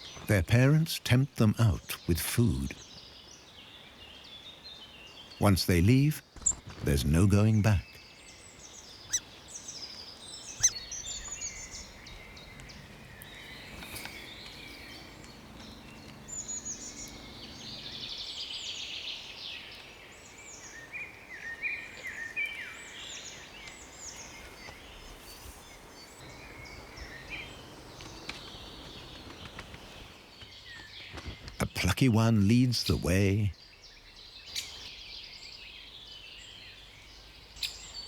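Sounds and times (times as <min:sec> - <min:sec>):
birds chirping: 0:00.0 - 0:38.0
buzzy bird trill: 0:10.4 - 0:18.6.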